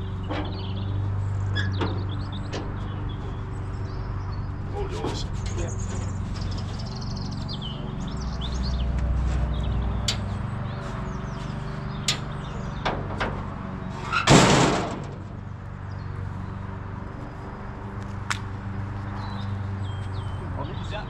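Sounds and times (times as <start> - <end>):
engine knocks: 0.0 - 15.8
loud engine bang: 12.6 - 15.5.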